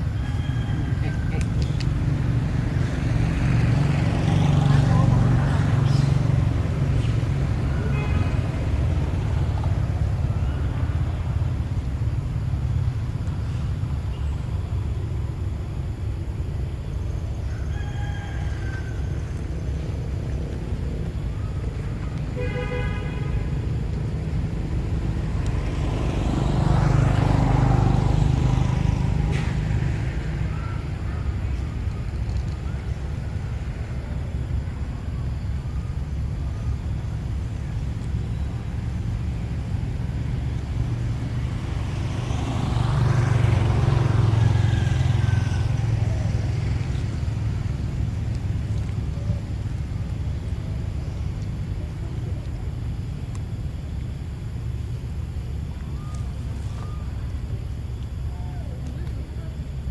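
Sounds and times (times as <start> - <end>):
vehicle passing close by: 0.0 - 11.7, 23.3 - 34.6, 38.5 - 52.4
road traffic rumble: 0.0 - 59.9.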